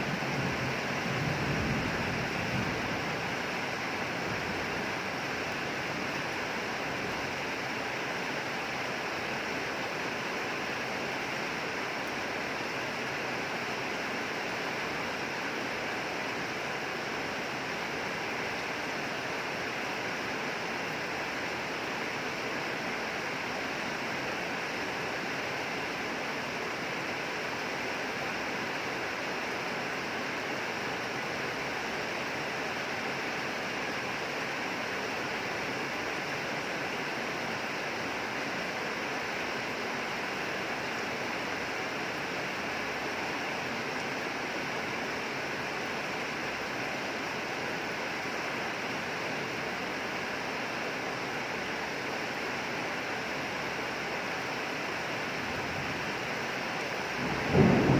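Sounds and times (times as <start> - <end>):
steady rain hiss: 0.0 - 57.9.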